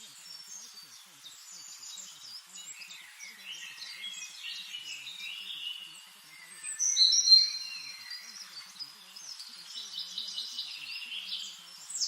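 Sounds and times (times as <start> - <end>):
birds singing: 0.0 - 12.0.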